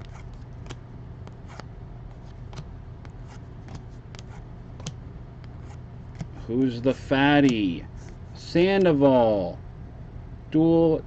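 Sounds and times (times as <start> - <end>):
cards clicking and rustling: 0.0 - 5.0
low steady hum: 0.0 - 11.0.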